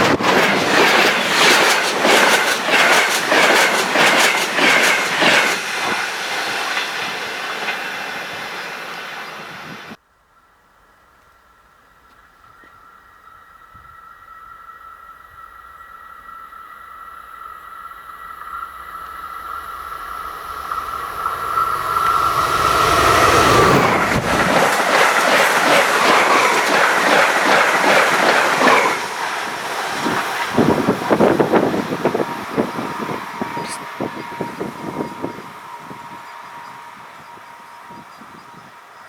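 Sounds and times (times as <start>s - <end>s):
train passing high whine: 0.0s - 10.0s, 11.5s - 39.0s
train wheels clattering on rails: 0.0s - 10.0s, 20.5s - 39.0s.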